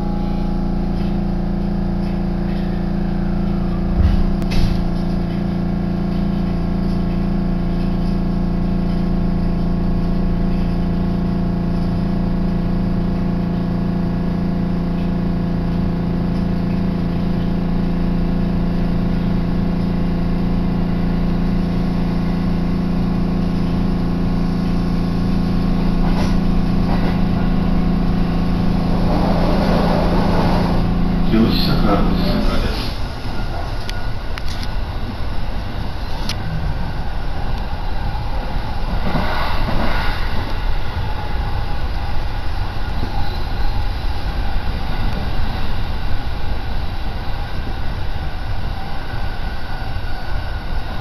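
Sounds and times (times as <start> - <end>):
electric train hum: 0.0 - 51.0
train rumbling and clattering: 2.0 - 8.0, 23.4 - 51.0.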